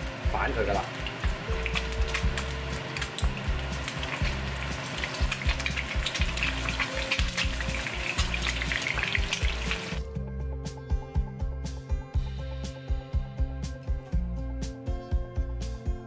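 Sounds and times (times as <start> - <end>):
eggs sizzling in hot oil: 0.0 - 10.0.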